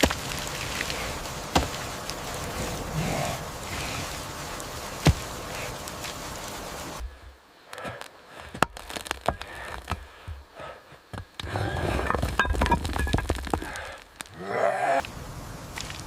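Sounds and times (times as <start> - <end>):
scraping: 11.4 - 14.0.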